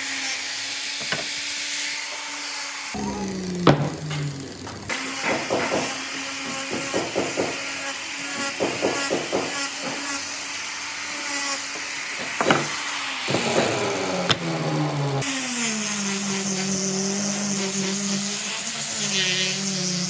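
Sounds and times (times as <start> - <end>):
power tool running: 0.1 - 20.0.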